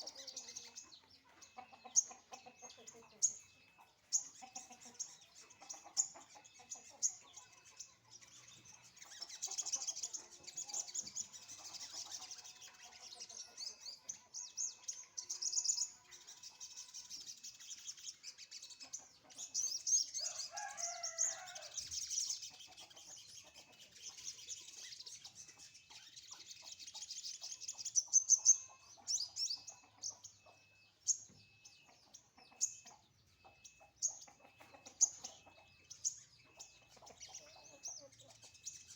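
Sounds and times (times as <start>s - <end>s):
chickens clucking: 0.0s - 38.9s
songbird chirping and twittering: 0.0s - 38.9s
rooster crowing: 20.2s - 21.8s.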